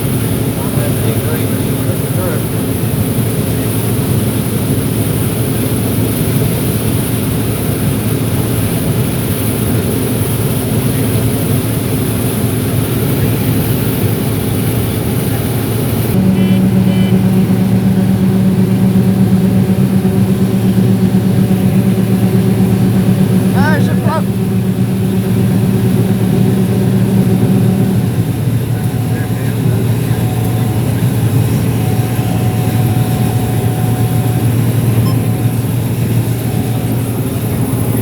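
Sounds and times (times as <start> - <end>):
combine harvester engine hum: 0.0 - 38.0
strong low hum: 14.2 - 38.0.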